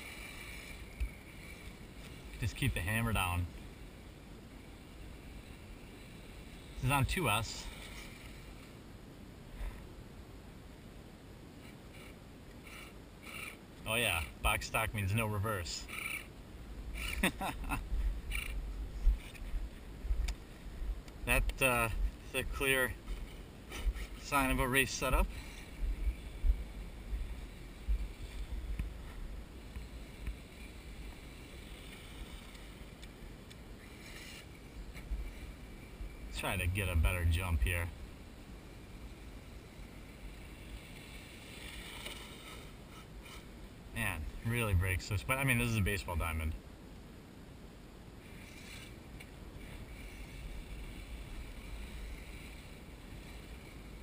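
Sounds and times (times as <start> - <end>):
toy truck electric motor whine: 11.9 - 13.6, 15.9 - 16.3
wind rumbling on microphone: 16.5 - 44.5.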